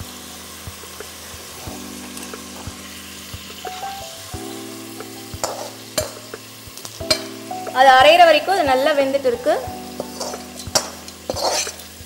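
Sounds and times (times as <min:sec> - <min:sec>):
onion and tomato sizzling in oil: 0:00.0 - 0:12.0
metal utensils clicking: 0:05.4 - 0:07.4, 0:09.9 - 0:12.0.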